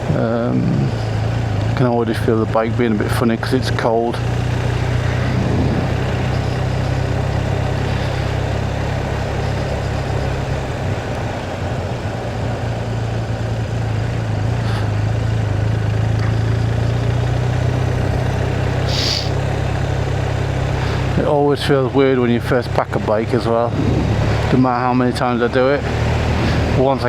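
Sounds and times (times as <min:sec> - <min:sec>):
motorcycle engine running: 0:00.0 - 0:27.0
wind rushing over microphone: 0:04.2 - 0:13.4, 0:23.4 - 0:24.6.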